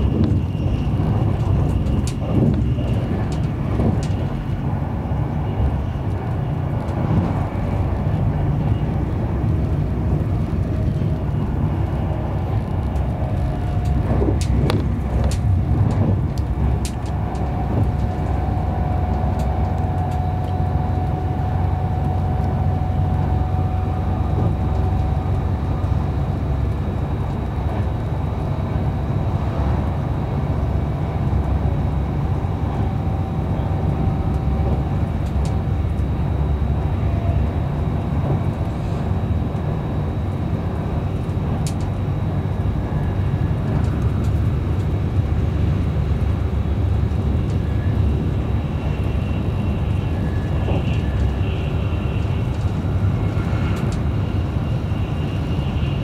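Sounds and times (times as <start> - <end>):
train wheels rumbling on rail: 0.0 - 56.0
faint steady whine: 16.5 - 56.0.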